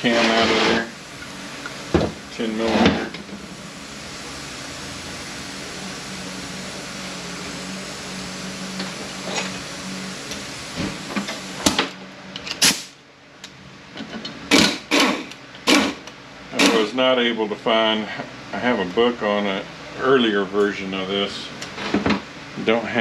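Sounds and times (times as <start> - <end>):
power ratchet running: 14.5 - 16.9.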